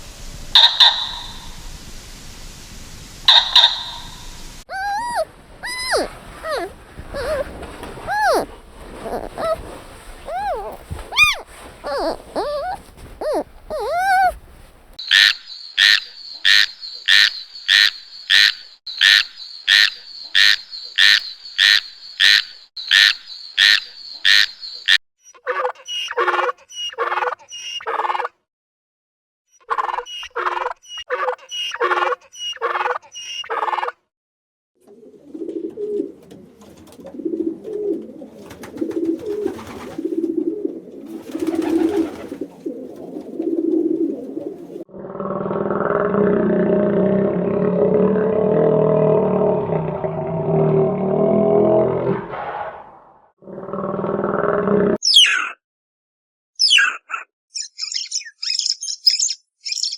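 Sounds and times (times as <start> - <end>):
sharp high animal calls: 0.6 - 1.4, 3.3 - 4.1, 4.7 - 14.4, 55.0 - 55.6
low animal calls: 4.7 - 14.4
quick lower animal calls: 4.7 - 14.4.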